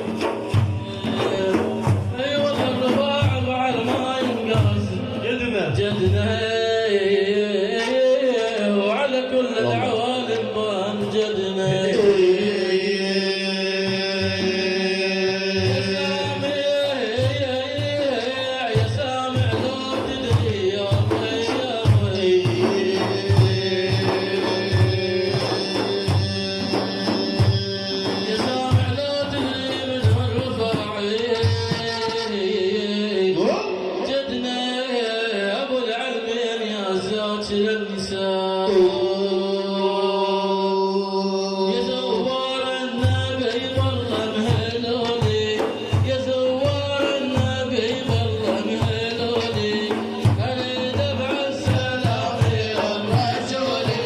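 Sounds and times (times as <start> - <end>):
hand drum rhythm: 0.0 - 6.6, 10.3 - 32.4, 42.4 - 54.0.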